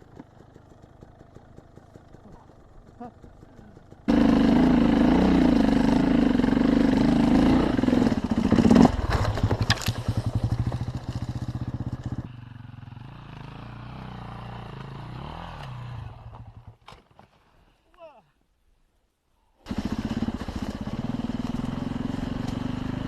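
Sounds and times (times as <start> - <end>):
motorcycle engine running: 0.0 - 16.8, 19.7 - 23.0.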